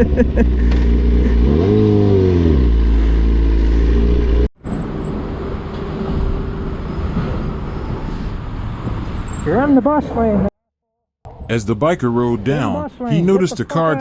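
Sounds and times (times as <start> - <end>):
road and traffic noise: 0.0 - 10.6, 11.3 - 14.0
motorcycle engine revving: 0.2 - 4.5.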